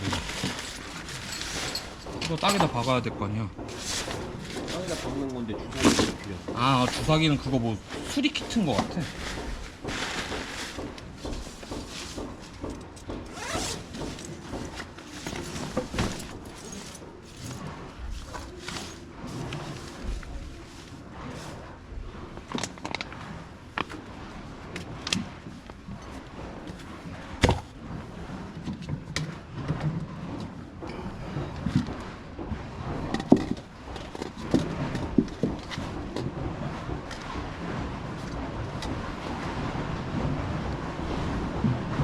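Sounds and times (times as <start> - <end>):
rustling of camping gear: 0.0 - 2.6, 3.7 - 7.2, 7.8 - 21.8
zipper being pulled: 13.4 - 14.0.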